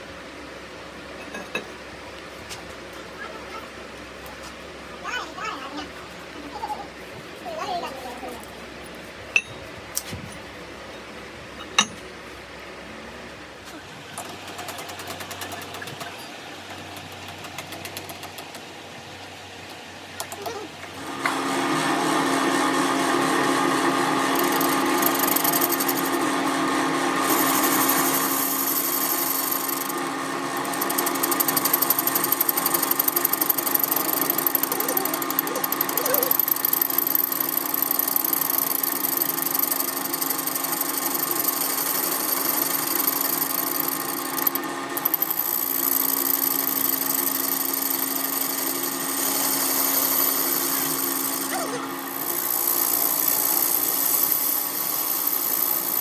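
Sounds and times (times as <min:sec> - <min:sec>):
workshop machinery humming: 0:08.4 - 0:14.4, 0:19.1 - 0:56.0.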